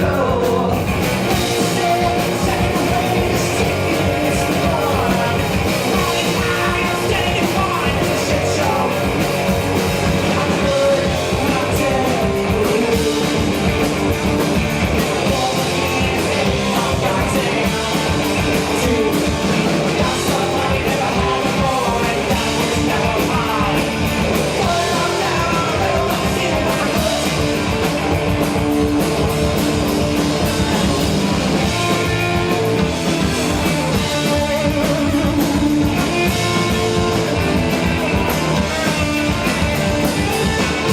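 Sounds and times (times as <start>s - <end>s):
person singing: 0.0s - 9.3s, 10.1s - 13.8s, 15.0s - 27.6s
live punk rock band: 0.0s - 40.9s.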